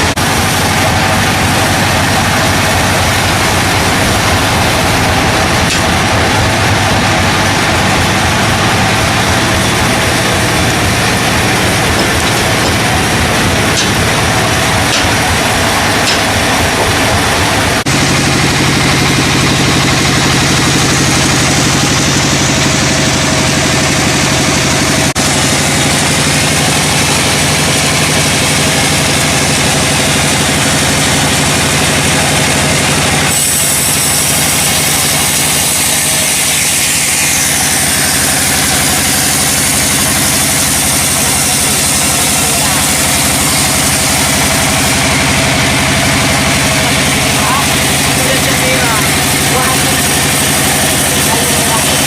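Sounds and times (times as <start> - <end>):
engine running loudly: 0.0 - 52.0.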